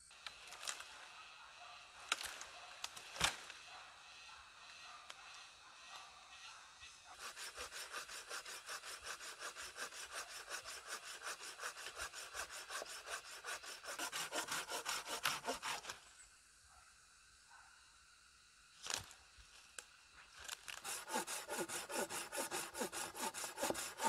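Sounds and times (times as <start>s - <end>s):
saw cutting through wood: 7.1s - 16.0s, 20.7s - 24.0s.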